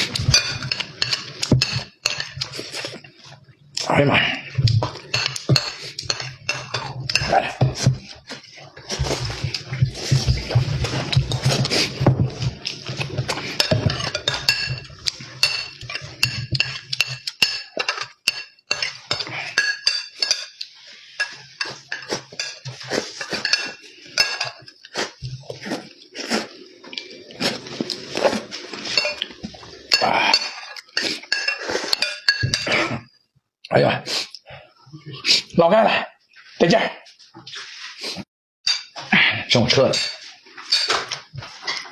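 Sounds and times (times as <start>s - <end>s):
utensils clinking against dishes: 0.0s - 3.4s, 4.5s - 33.1s, 38.7s - 41.9s.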